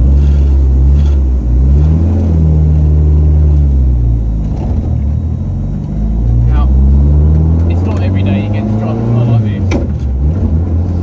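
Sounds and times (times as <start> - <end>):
rally car engine: 0.0 - 11.0.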